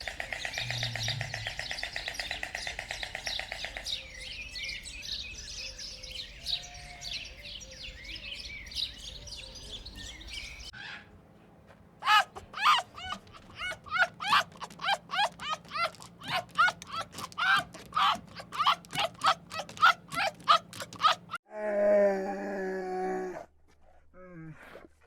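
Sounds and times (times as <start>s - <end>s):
bird rattling trill: 12.0s - 21.4s.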